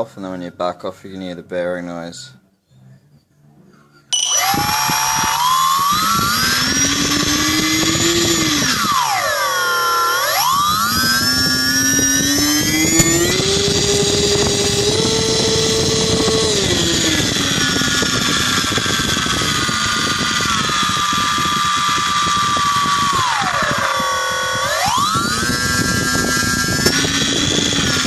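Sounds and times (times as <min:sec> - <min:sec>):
electric motor whine: 0:04.2 - 0:28.0.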